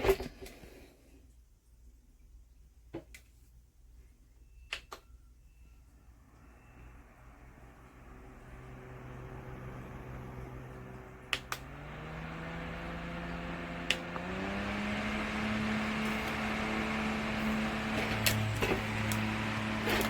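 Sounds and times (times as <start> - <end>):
fan motor hum: 6.0 - 20.0
fan button clicks: 11.3 - 11.7, 13.8 - 14.3.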